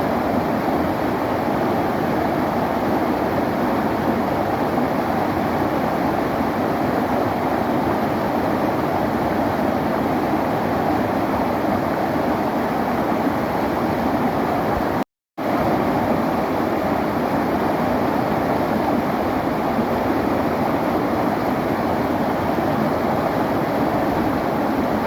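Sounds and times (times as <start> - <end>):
river water rushing: 15.4 - 25.0.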